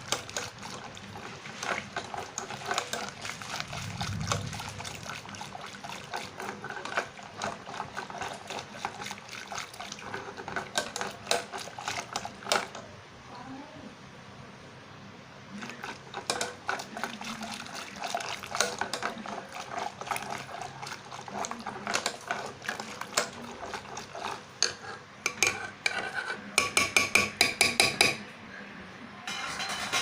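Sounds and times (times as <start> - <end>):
masher knocking in a pot: 26.6 - 28.2.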